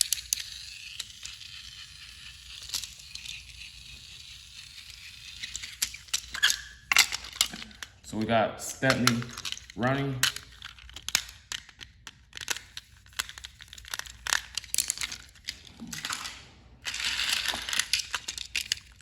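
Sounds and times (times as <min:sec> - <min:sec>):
plastic toy clicks and knocks: 0:00.0 - 0:19.0
crinkly rustling: 0:12.4 - 0:19.0.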